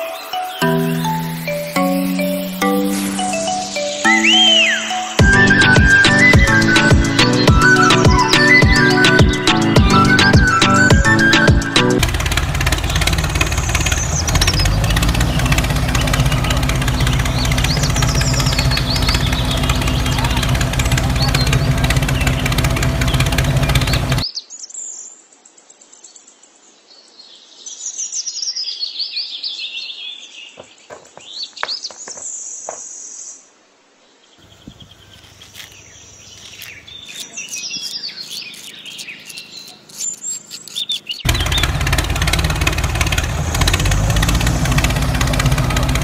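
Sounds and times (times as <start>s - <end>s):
small birds chirping and singing: 0.0s - 46.0s
loud steady hum: 5.2s - 24.2s, 41.3s - 46.0s.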